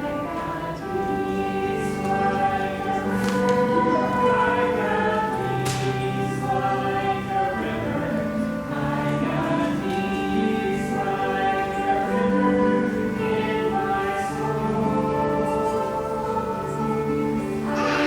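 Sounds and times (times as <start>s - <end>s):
group of voices singing: 0.0s - 18.0s
musical accompaniment: 0.0s - 18.0s.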